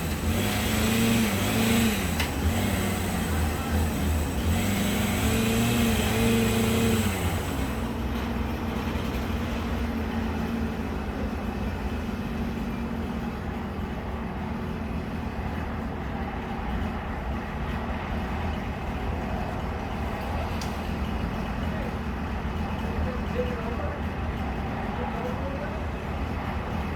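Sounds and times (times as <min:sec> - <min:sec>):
chainsaw running: 0:00.0 - 0:09.7.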